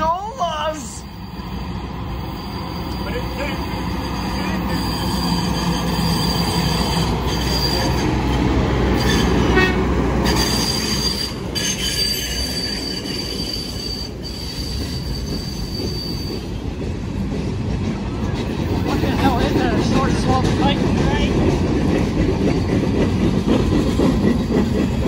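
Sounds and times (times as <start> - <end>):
steel wheels squealing on rails: 0.0 - 17.0, 18.0 - 25.0
rail cars clattering over track: 0.0 - 25.0.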